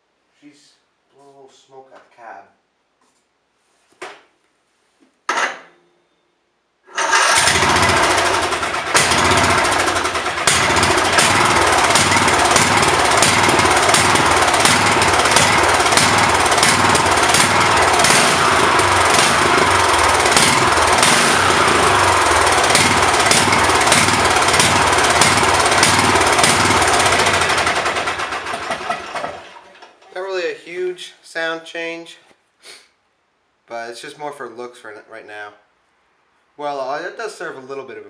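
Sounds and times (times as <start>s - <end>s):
riding mower engine running: 7.0s - 30.0s.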